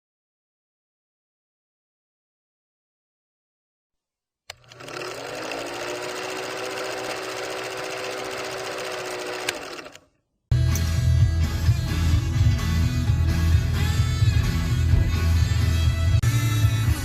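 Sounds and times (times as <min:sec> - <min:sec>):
clicks: 0:04.5 - 0:05.1, 0:09.3 - 0:10.1
mechanical whirring rattle: 0:04.5 - 0:10.1
rock music with electric guitar: 0:10.5 - 0:17.0.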